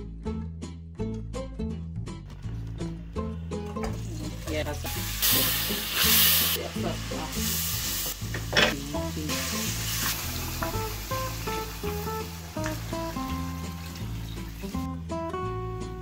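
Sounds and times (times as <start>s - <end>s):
guitar music: 0.0s - 16.0s
onions sizzling in hot oil: 3.9s - 15.0s.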